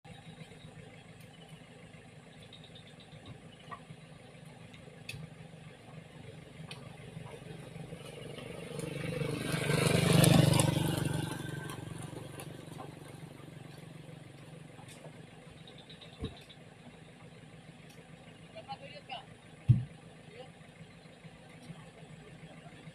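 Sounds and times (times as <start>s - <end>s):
low engine hum: 0.0s - 22.9s
motor vehicle passing by: 6.9s - 14.4s.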